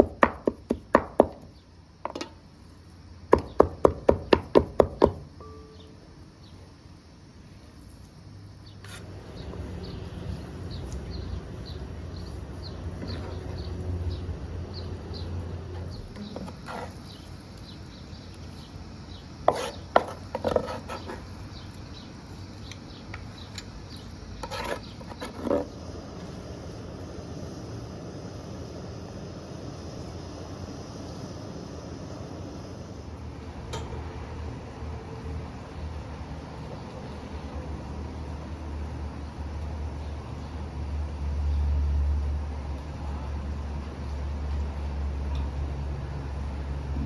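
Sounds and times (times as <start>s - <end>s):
knife chopping on wooden board: 0.0s - 1.5s, 3.4s - 5.2s, 19.5s - 21.2s.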